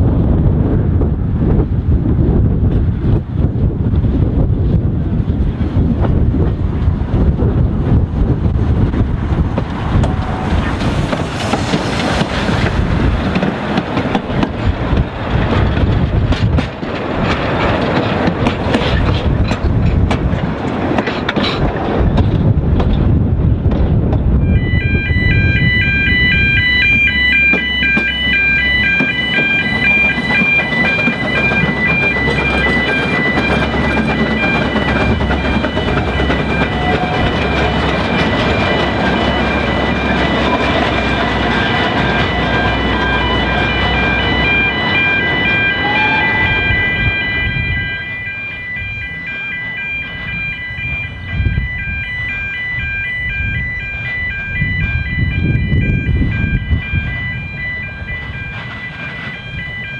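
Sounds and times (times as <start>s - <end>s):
train rumbling on track: 0.0s - 59.9s.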